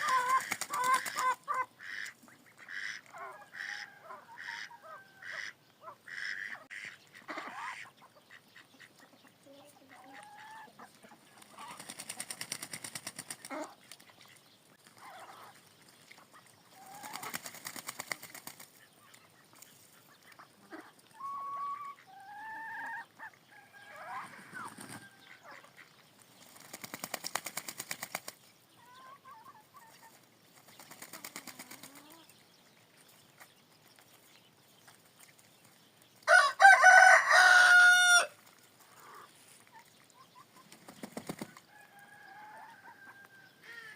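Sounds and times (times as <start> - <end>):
chickens clucking: 0.0 - 32.5, 36.3 - 43.9
rooster crowing: 36.3 - 38.4, 41.7 - 43.6.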